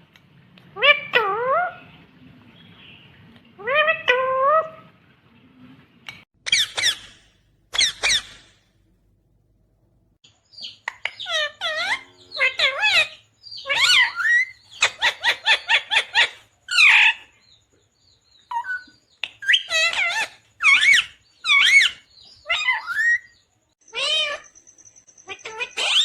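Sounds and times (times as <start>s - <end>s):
parrot squawking: 0.8s - 1.9s, 6.4s - 8.6s, 11.0s - 17.3s, 18.5s - 23.3s, 23.9s - 24.5s, 25.3s - 26.0s.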